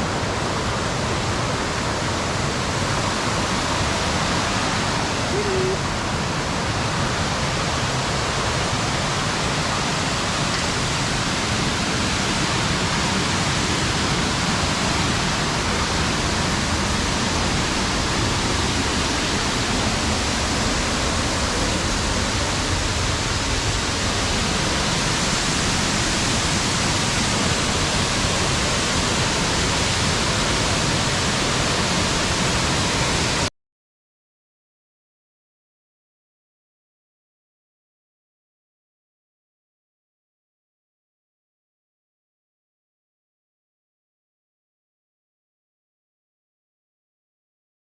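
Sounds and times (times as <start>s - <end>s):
waterfall roaring: 0.0s - 33.5s.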